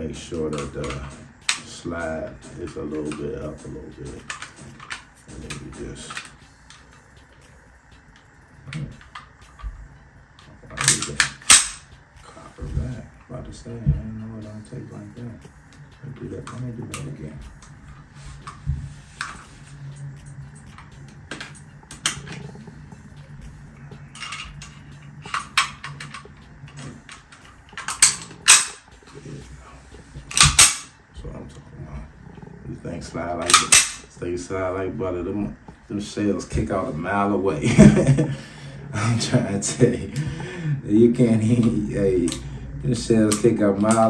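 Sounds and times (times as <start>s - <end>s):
sharp metallic click: 10.7s - 12.0s, 24.2s - 29.1s, 30.3s - 31.0s, 33.4s - 34.2s, 43.3s - 44.0s
loud sharp pistol slide clacks: 10.8s - 11.9s, 27.8s - 28.8s, 30.3s - 30.9s, 33.5s - 34.1s
pistol slide scraping: 10.8s - 11.9s, 25.2s - 29.4s, 30.2s - 30.9s, 33.4s - 34.1s.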